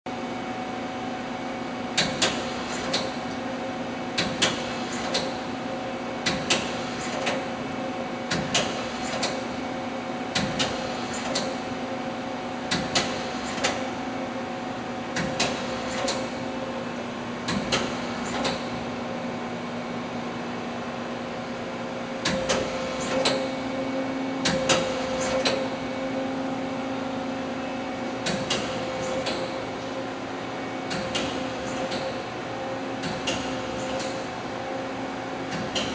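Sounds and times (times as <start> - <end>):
machine running with steady hum: 0.1 - 35.9
sharp mechanical clicks: 17.5 - 18.7, 22.2 - 23.5, 28.2 - 29.6, 30.9 - 32.2.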